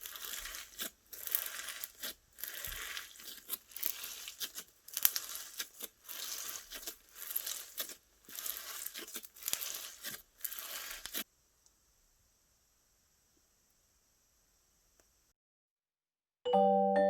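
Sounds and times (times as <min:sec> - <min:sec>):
slime popping: 0:00.0 - 0:11.2
slime squishing and crackling: 0:00.0 - 0:11.3.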